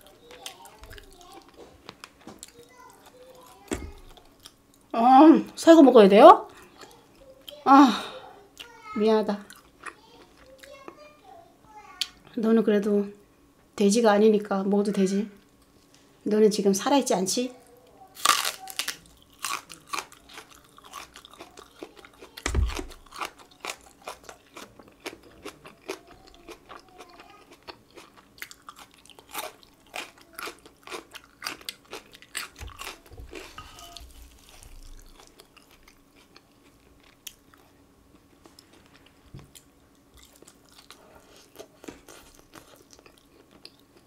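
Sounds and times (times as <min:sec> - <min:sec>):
crunching bites of green onion: 0:18.2 - 0:36.4.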